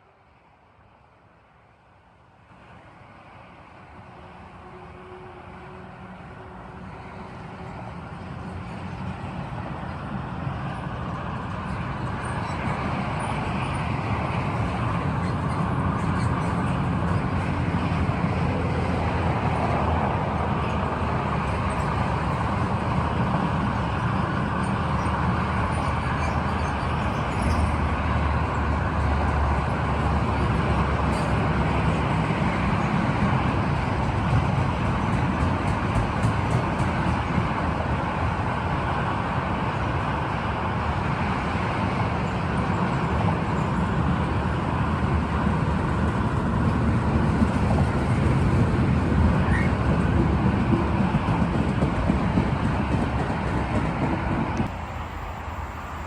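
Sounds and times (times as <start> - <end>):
freight train rumbling: 0.0 - 56.0
train wheel clicks: 33.4 - 37.4.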